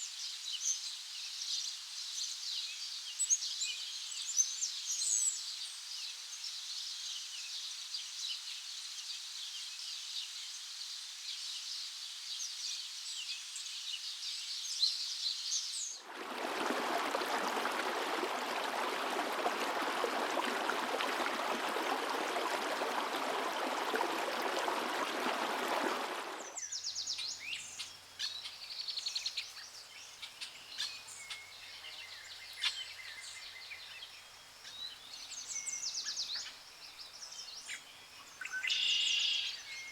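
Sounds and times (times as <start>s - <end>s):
chorus of forest birds: 0.0s - 39.9s
rushing water: 16.0s - 26.6s
bird chirps: 26.4s - 39.9s.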